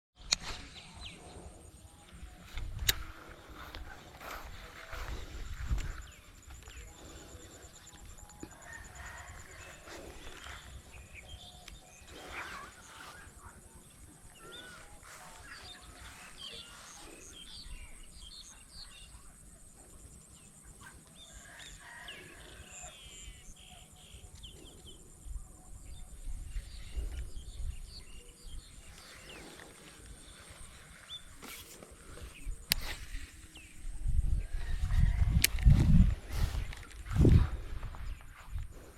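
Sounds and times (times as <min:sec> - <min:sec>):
sharp click: 0:00.2 - 0:00.8
small birds chirping: 0:00.2 - 0:38.9.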